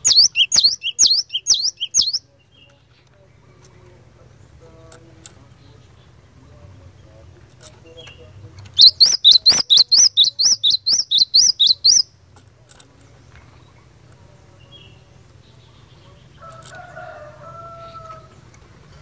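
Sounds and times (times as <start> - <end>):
bird singing sharp chirps: 0.0 - 2.7, 7.9 - 12.1
faint drawn-out bird call: 0.0 - 3.1, 7.9 - 12.1.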